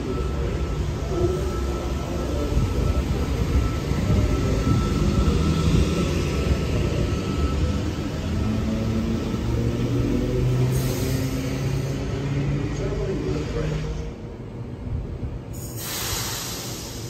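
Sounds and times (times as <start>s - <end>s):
faint high whine: 0.0s - 9.6s
train rumbling past: 0.0s - 17.0s
brief hiss: 15.6s - 17.0s.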